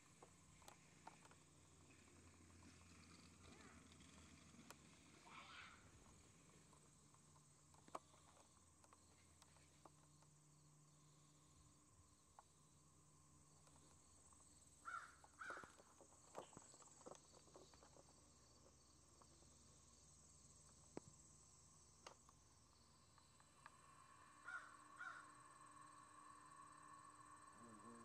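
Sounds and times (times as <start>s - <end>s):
faint bird calls: 0.6s - 6.7s, 13.6s - 19.6s, 22.7s - 26.3s.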